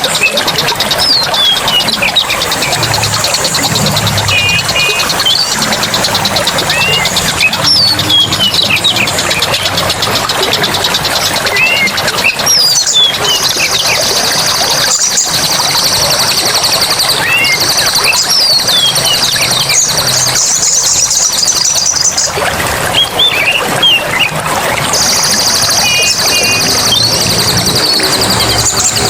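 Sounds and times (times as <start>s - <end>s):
birds chirping: 0.0s - 29.0s
running water: 0.0s - 29.0s
high buzzing chorus: 1.3s - 13.2s.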